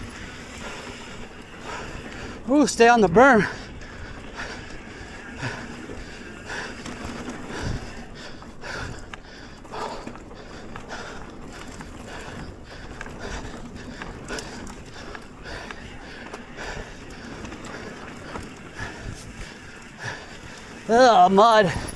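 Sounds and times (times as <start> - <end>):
bike tyre and trail noise: 0.0 - 21.9
rider breathing hard: 0.0 - 21.9
bike rattles and knocks: 5.4 - 21.9.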